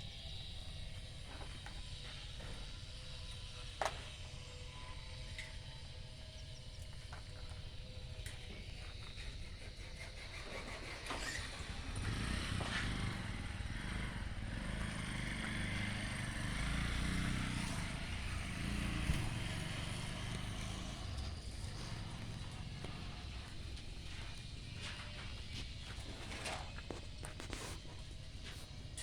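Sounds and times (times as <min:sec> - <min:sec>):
engine running: 0:07.2 - 0:29.0.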